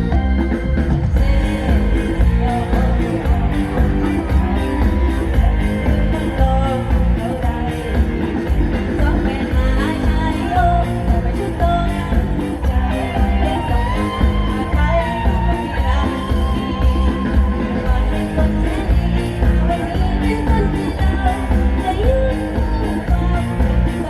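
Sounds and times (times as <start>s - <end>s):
live band music: 0.0s - 24.0s.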